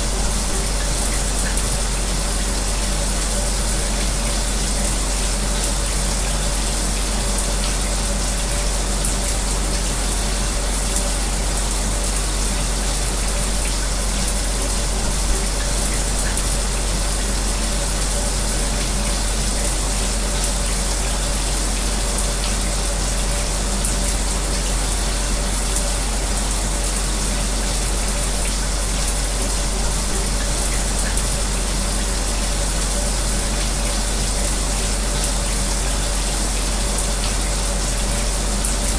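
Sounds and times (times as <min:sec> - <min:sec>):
electric fan humming: 0:00.0 - 0:38.9.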